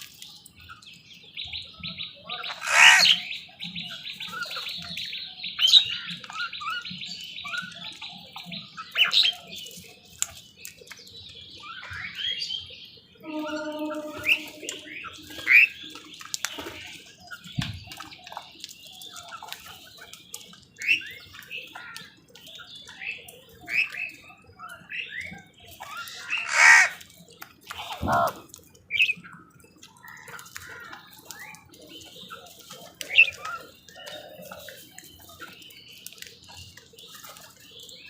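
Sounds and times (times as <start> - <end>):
crows and birds calling: 2.3 - 3.4, 25.8 - 27.2, 27.8 - 29.1, 29.9 - 31.5
long low bird call: 13.2 - 15.7.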